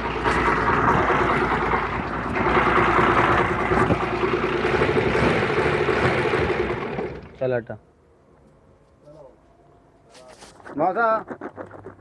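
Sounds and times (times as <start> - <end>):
engine drone: 0.0 - 8.3.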